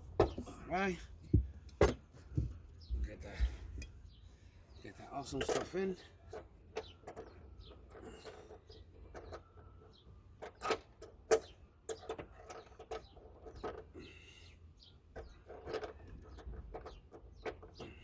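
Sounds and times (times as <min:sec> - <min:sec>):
metal tools clicking and knocking: 0:05.2 - 0:07.4.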